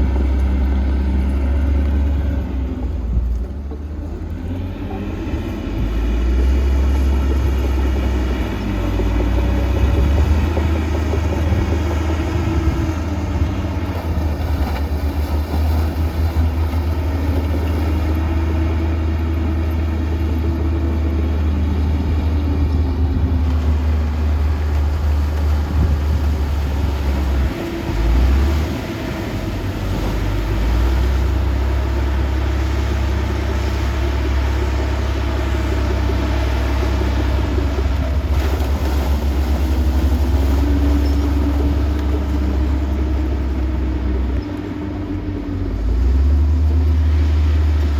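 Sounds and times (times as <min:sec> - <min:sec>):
diesel earthmoving machinery rumble: 0:00.0 - 0:47.9.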